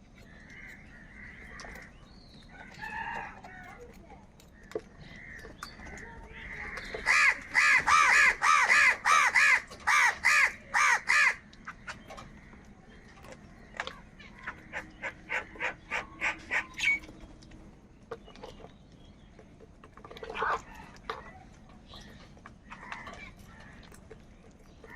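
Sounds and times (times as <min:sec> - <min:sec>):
crows cawing: 0:00.2 - 0:03.3, 0:05.1 - 0:12.7, 0:14.3 - 0:17.0.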